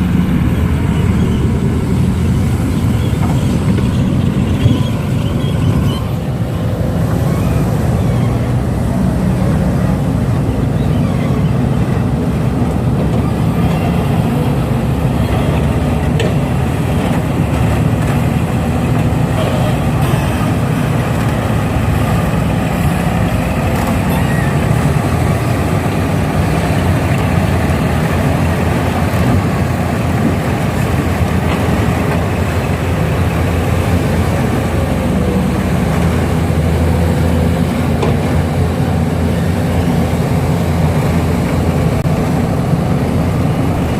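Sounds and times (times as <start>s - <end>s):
heavy diesel engines droning: 0.0s - 43.9s.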